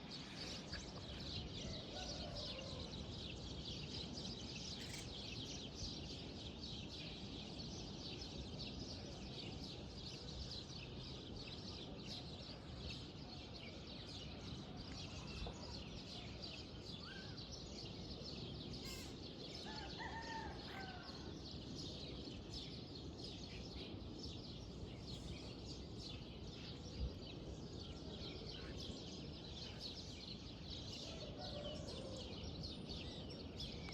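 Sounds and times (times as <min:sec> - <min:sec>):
small birds chirping: 0:04.7 - 0:06.6, 0:13.8 - 0:21.0
clear bird calls: 0:18.8 - 0:21.0.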